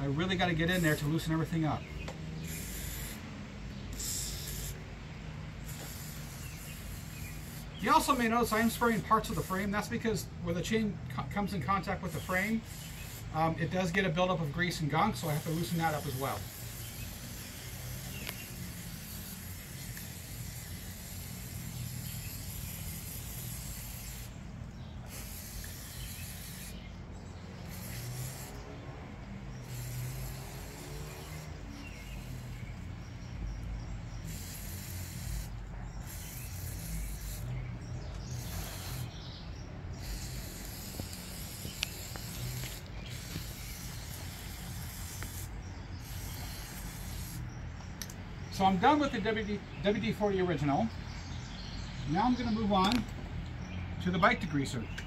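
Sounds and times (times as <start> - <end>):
aerosol can spraying: 0.6 - 4.9, 5.6 - 10.7, 11.4 - 28.8, 29.4 - 33.0, 34.2 - 47.5.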